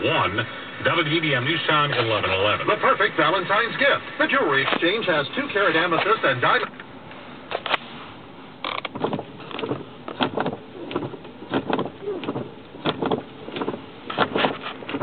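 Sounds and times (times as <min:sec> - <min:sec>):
radio announcer speaking: 0:00.0 - 0:06.8
radio commercial: 0:00.0 - 0:06.8.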